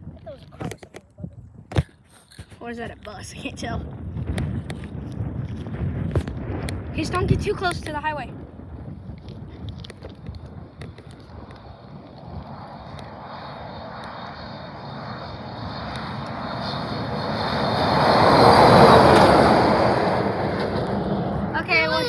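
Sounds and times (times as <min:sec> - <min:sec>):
truck passing on highway: 0:15.0 - 0:21.8.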